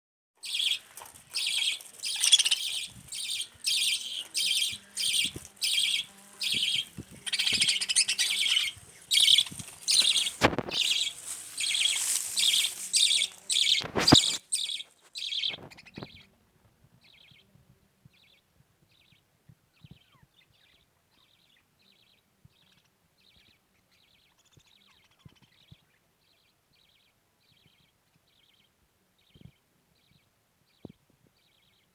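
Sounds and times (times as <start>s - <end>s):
budgerigars chirping: 0.4s - 16.2s.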